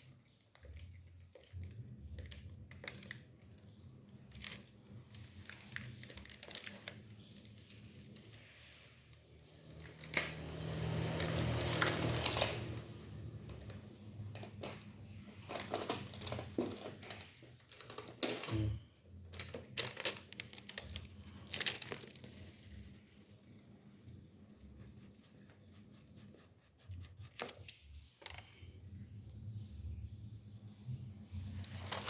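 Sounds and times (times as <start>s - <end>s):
plastic wrapping crinkling: 0.0s - 7.9s, 14.4s - 18.6s, 19.2s - 22.8s, 31.5s - 32.0s.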